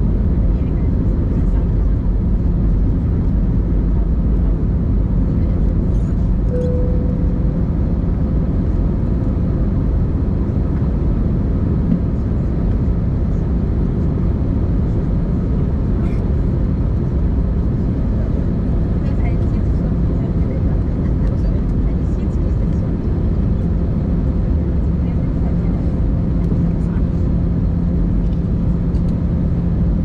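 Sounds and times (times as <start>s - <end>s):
aircraft cabin engine rumble: 0.0s - 30.0s
brief thin tone: 6.5s - 7.6s.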